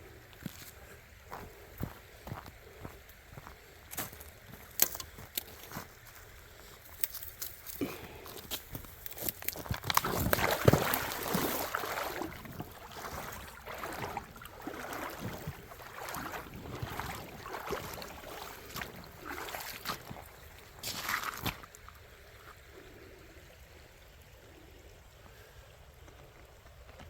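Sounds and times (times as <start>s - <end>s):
footsteps splashing in water: 6.8s - 21.9s.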